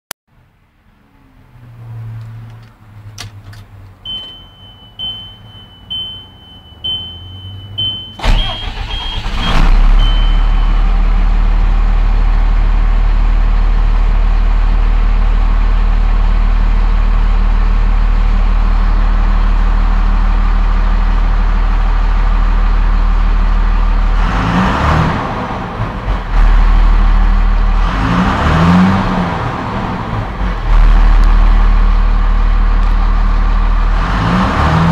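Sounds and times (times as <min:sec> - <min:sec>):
diesel engine cranking and starting: 0:02.4 - 0:34.9
diesel engine idling: 0:03.9 - 0:24.4, 0:29.0 - 0:34.2
warning beep: 0:04.1 - 0:11.0
engine revving: 0:08.2 - 0:12.8, 0:24.0 - 0:32.2, 0:32.8 - 0:34.9.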